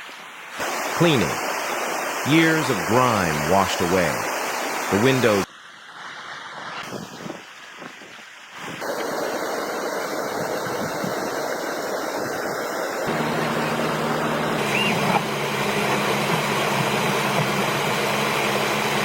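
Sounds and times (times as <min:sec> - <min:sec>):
steady rushing hiss: 0:00.0 - 0:19.0
low motor hum: 0:13.1 - 0:19.0.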